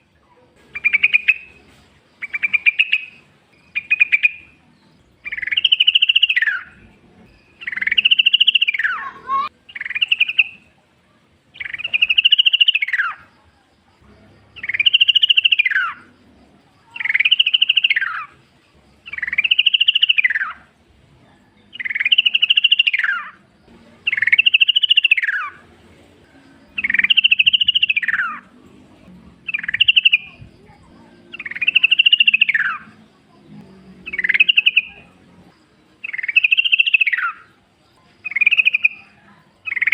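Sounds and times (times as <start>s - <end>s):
bird singing bubbly phrases: 0.0s - 1.6s, 2.2s - 10.8s, 11.5s - 13.3s, 14.6s - 16.1s, 16.8s - 18.4s, 19.0s - 20.8s, 21.5s - 25.7s, 26.6s - 28.6s, 29.4s - 39.9s.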